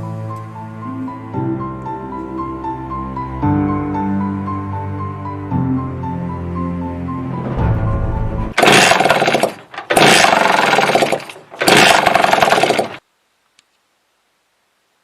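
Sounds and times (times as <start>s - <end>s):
background music: 0.0s - 9.0s
small engine revving: 8.6s - 13.0s.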